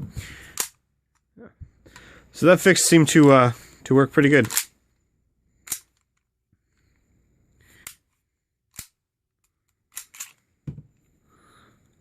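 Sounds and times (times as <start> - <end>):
pistol metallic clicks: 0.5 - 0.8, 5.6 - 6.0, 8.7 - 9.0, 9.9 - 10.4.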